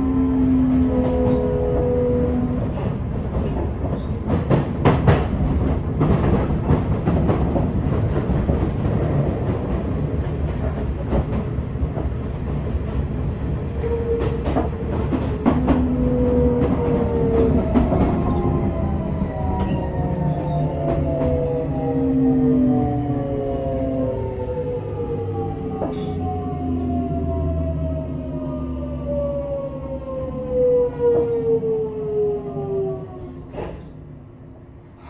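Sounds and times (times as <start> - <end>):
train inverter tones: 0.0 - 7.0, 13.3 - 35.0
rail joint clacks: 0.0 - 22.0, 25.6 - 26.5, 33.4 - 34.1
wheel and rail rumble: 0.0 - 35.0.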